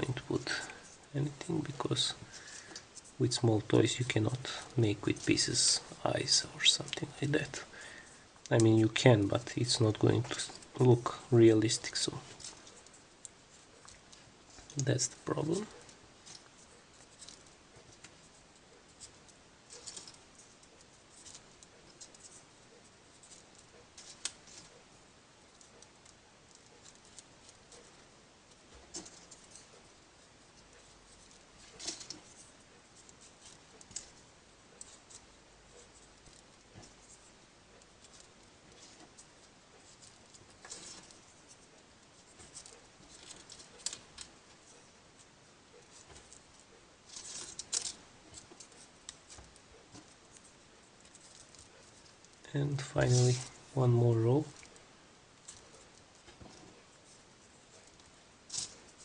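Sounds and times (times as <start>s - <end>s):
paper rustling: 47.1s - 54.8s.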